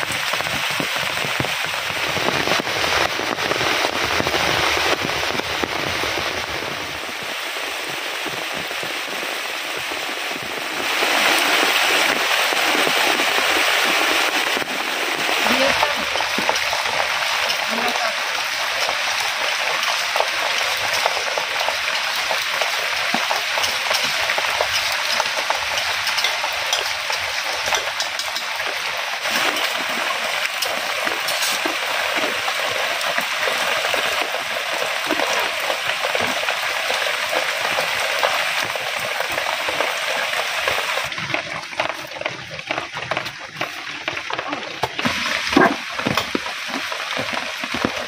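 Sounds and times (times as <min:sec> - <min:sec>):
food sizzling in hot oil: 0:10.5 - 0:41.4.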